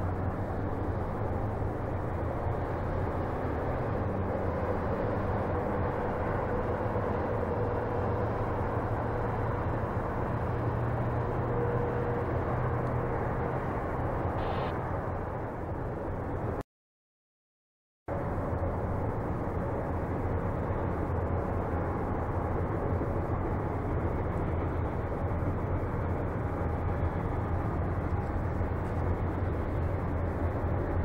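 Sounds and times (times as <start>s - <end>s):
distant train rumble: 0.0s - 16.6s
faint steady hum: 14.4s - 14.8s.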